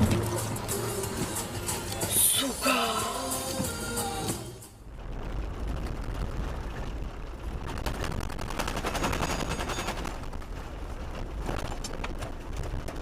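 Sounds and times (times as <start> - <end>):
steady low rumble: 0.0 - 2.1.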